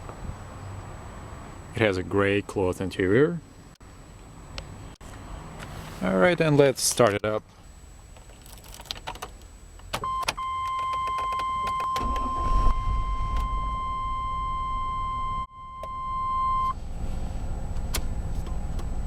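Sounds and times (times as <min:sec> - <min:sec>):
electronic warning tone: 0:10.1 - 0:16.7
engine cranking: 0:11.8 - 0:13.3.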